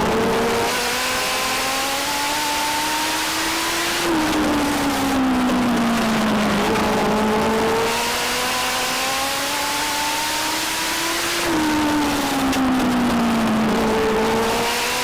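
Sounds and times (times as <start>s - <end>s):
racing car engine revving: 0.0s - 15.0s.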